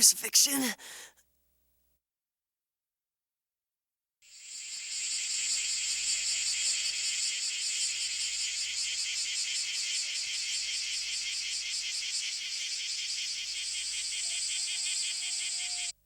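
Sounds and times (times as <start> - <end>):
cicadas droning: 4.3 - 16.0.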